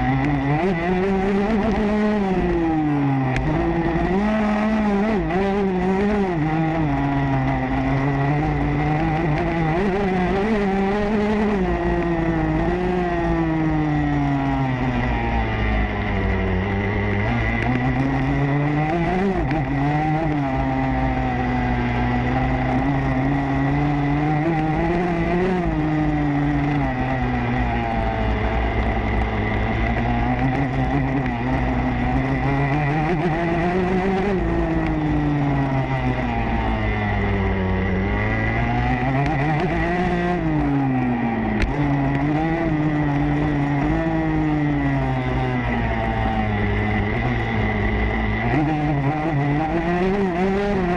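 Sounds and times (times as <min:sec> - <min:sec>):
motocross bike engine revving: 0:00.0 - 0:50.9.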